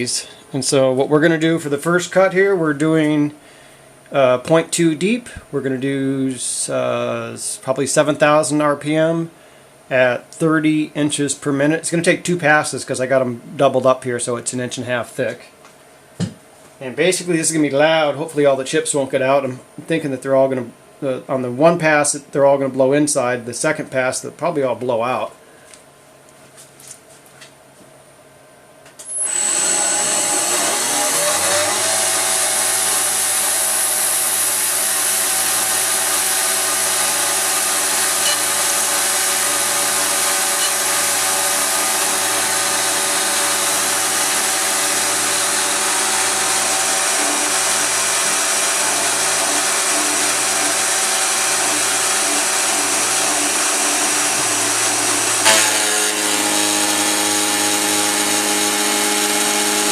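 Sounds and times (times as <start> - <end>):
cutter milling metal: 29.0 - 59.9
mill spindle whine: 29.0 - 59.9.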